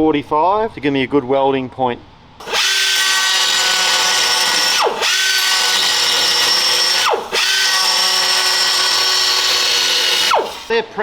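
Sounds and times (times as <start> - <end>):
power grinder whining: 2.4 - 10.7.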